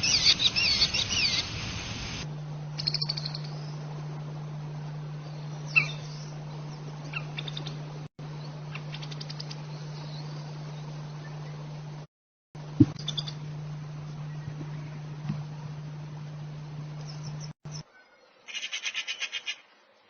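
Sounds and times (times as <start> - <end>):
bird downward-slurred call: 0.0 - 1.5, 5.7 - 6.3
bird trills: 0.0 - 1.6, 2.8 - 3.8, 5.6 - 6.4, 7.0 - 7.8, 13.0 - 13.5, 17.0 - 19.7
loud hiss: 0.0 - 2.3
steady low hum: 0.0 - 17.8.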